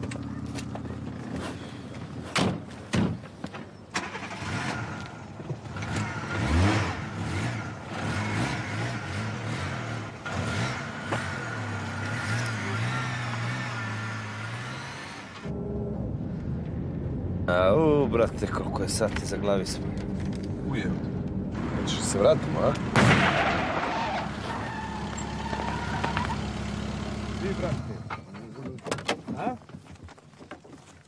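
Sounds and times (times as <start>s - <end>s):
car engine idling and revving: 4.0s - 28.7s.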